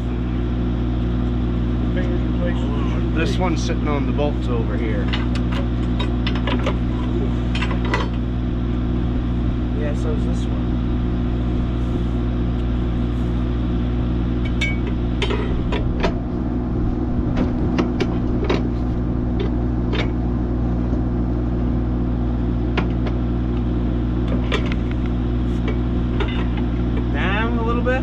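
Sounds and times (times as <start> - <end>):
engine idling: 0.0 - 28.0
heavy engine knocking onto mounts: 5.0 - 8.3, 17.2 - 20.4.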